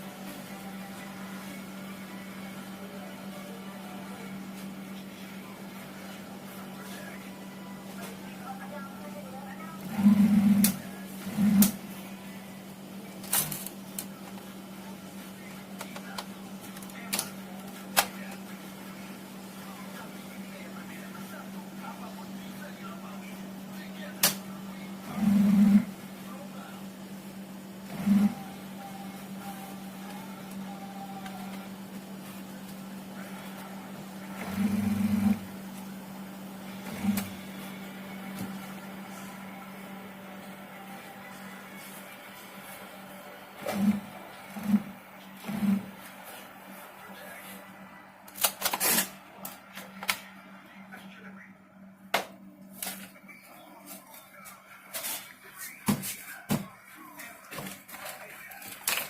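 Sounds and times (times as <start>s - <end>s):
steady low hum: 0.0s - 59.0s
electrical buzz: 9.8s - 12.0s.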